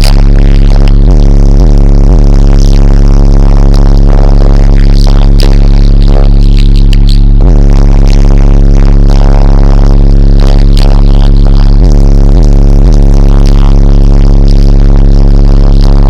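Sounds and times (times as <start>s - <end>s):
distorted bass-heavy music: 0.0s - 16.0s
downward bass slides: 0.0s - 16.0s.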